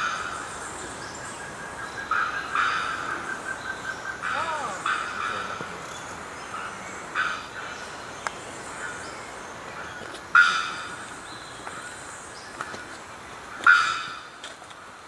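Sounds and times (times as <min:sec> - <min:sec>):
bird giving sharp calls: 0:04.1 - 0:05.5.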